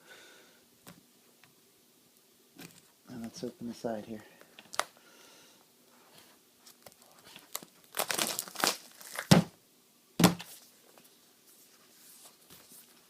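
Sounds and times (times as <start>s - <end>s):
cardboard tearing and crinkling: 6.8s - 9.4s.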